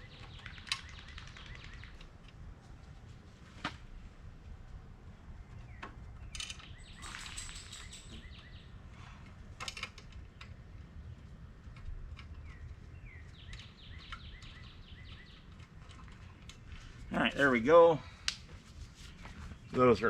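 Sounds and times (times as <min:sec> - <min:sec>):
birds chirping: 0:00.0 - 0:02.3, 0:05.4 - 0:09.4, 0:10.0 - 0:18.3, 0:19.0 - 0:20.0
low outdoor rumble: 0:00.0 - 0:20.0.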